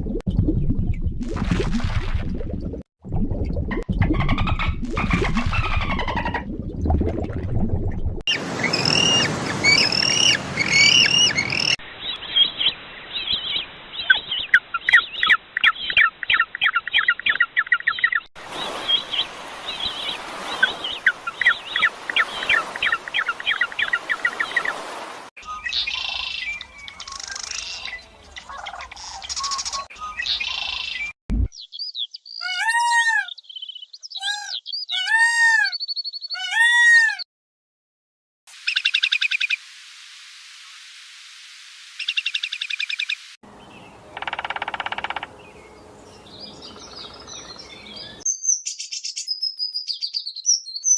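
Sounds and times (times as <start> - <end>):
birds chirping rapidly: 8.3 - 37.2, 42.0 - 50.9
bird arching calls: 8.6 - 11.8, 44.1 - 45.4.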